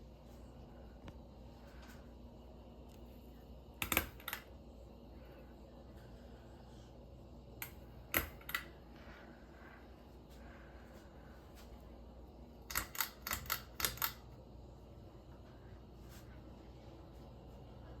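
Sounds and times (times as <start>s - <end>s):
ceiling fan humming: 0.0s - 18.0s
sharp clicks: 12.7s - 14.2s.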